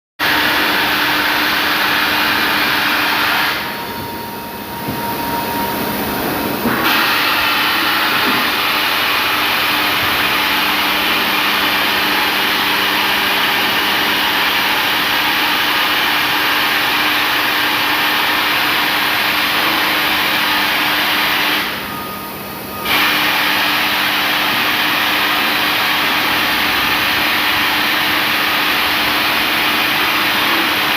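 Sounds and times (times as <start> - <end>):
low hum: 3.4 - 6.9.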